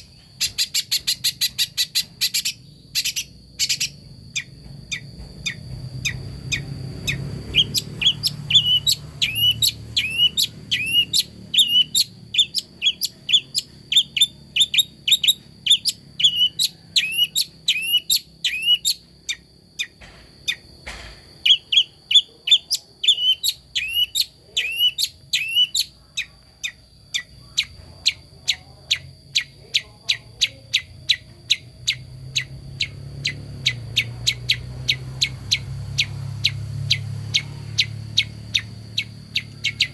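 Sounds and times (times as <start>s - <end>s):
bird calling sharp rising notes: 0.0s - 20.6s, 30.8s - 39.9s.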